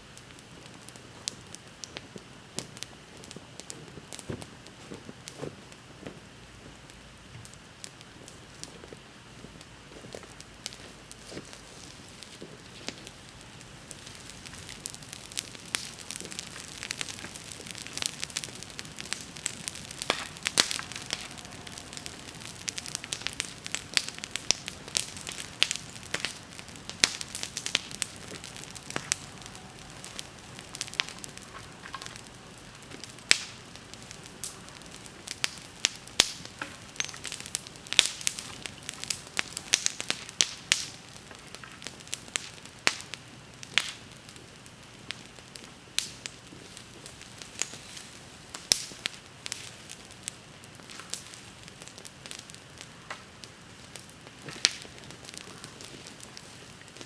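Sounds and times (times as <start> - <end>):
bonfire crackling and popping: 0.0 - 57.0.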